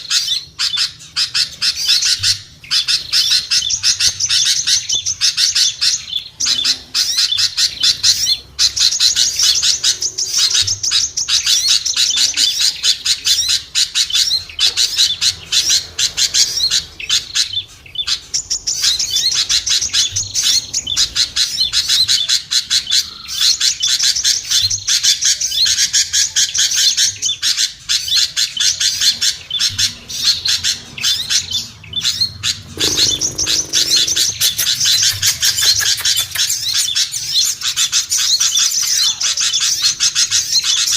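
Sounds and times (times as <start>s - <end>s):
songbirds chirping and twittering: 0.0s - 40.9s
lower bird call: 27.9s - 38.7s.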